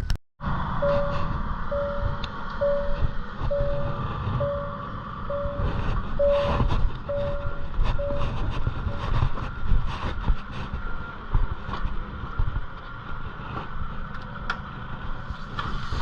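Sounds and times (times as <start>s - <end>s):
low vehicle engine rumble: 0.0s - 16.0s
short beeps: 0.8s - 9.0s.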